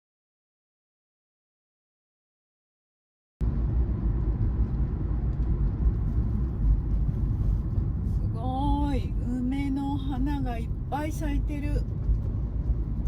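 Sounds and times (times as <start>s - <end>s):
car engine inside cabin: 3.4s - 13.0s
road noise: 3.4s - 13.0s.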